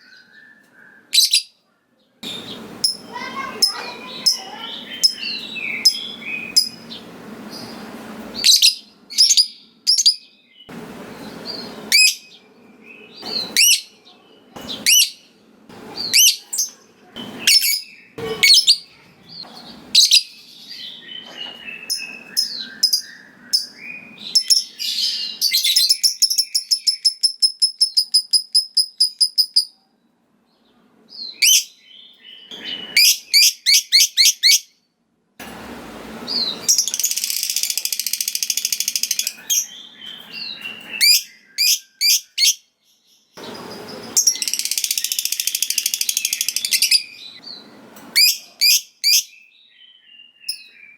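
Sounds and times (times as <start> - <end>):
bird chirping: 0.0 - 29.9, 30.5 - 34.8, 36.3 - 50.9.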